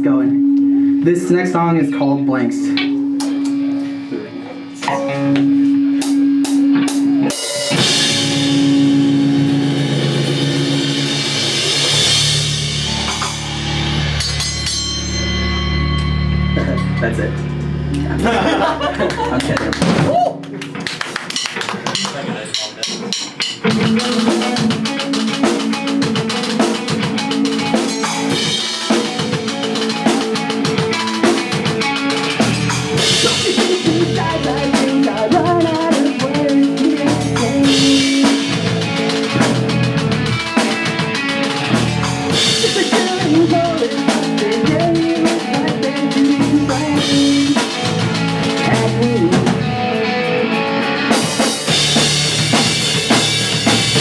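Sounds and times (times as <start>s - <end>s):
pop-punk band playing live: 2.7s - 54.0s
cymbal crashes: 4.9s - 17.2s
drum kit fast beat: 6.0s - 15.0s, 18.2s - 50.0s, 51.1s - 54.0s.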